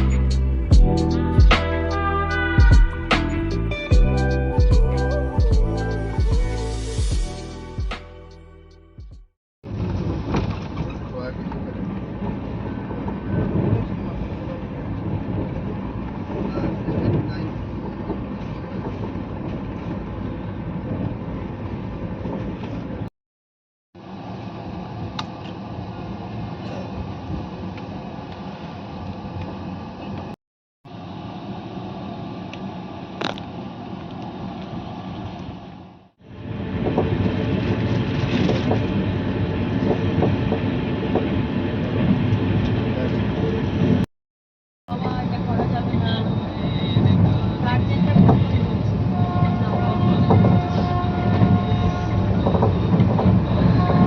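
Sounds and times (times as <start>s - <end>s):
vehicle rumble from inside: 0.0s - 7.8s
train rumbling: 0.0s - 8.0s, 9.7s - 23.1s, 31.0s - 44.1s, 44.9s - 54.0s
wheels clacking on rails: 36.6s - 44.0s, 45.0s - 54.0s.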